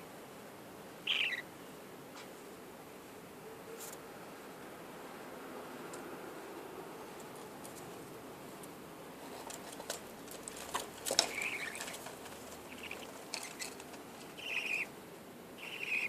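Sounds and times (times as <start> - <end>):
budgerigars chirping: 1.0 - 1.5, 11.2 - 12.0, 12.6 - 14.9, 15.6 - 16.0.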